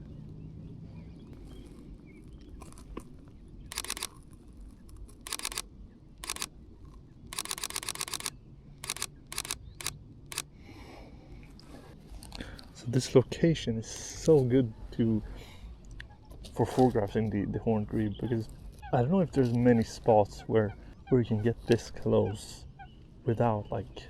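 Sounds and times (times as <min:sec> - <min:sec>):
camera shutter firing in bursts: 0:03.7 - 0:04.1, 0:05.2 - 0:06.5, 0:07.3 - 0:10.5.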